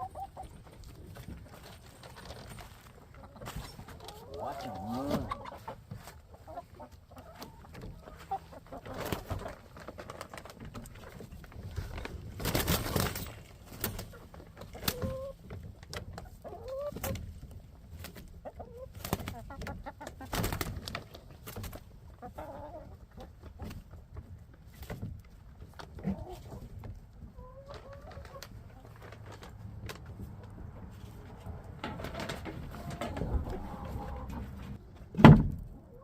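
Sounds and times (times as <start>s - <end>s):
hens clucking: 0.0s - 35.1s
rustling: 0.4s - 6.5s.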